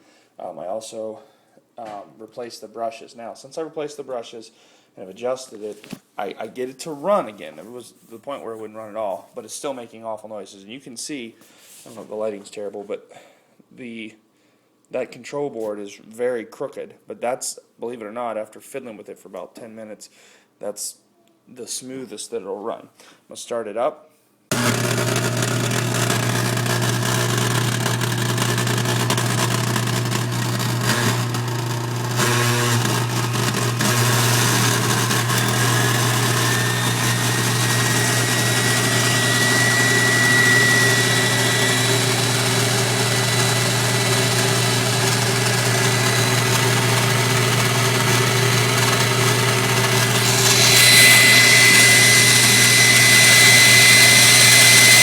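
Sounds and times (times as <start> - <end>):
stand mixer motor grinding and whining: 24.5 - 55.0.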